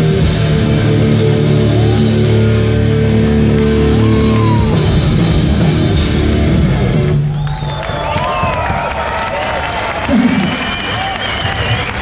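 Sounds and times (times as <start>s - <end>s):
hardcore band playing live: 0.0s - 7.4s
crowd shouting and cheering: 0.0s - 12.0s.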